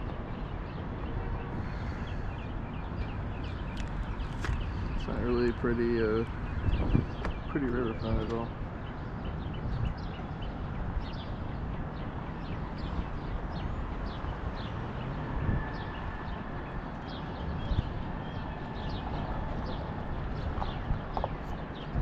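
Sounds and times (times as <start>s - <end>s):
low rumble of wind: 0.0s - 22.0s
small birds chirping: 0.0s - 22.0s.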